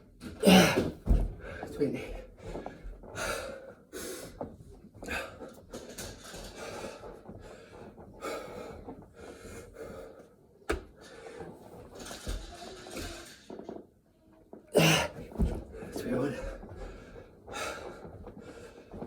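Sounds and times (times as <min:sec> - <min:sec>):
man breathing hard and gasping: 0:14.8 - 0:15.2.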